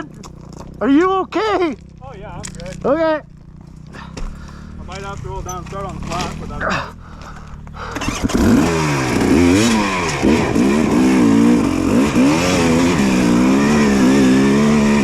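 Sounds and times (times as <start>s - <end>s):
dirt bike engine revving: 0.0s - 7.1s, 7.8s - 15.0s.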